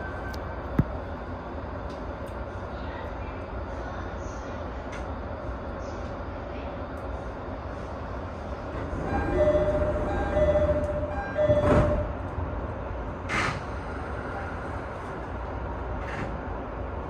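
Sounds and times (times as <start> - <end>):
stationary train low hum: 0.0 - 17.0.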